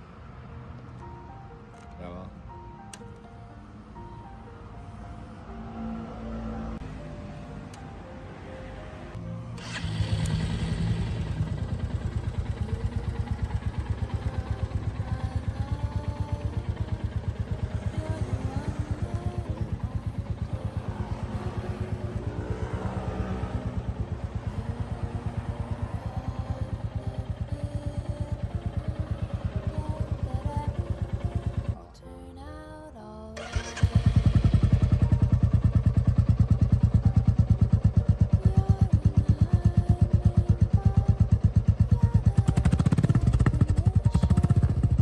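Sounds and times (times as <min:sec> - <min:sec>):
background music: 0:00.0 - 0:45.0
motorcycle engine idling: 0:09.6 - 0:31.8, 0:33.4 - 0:45.0.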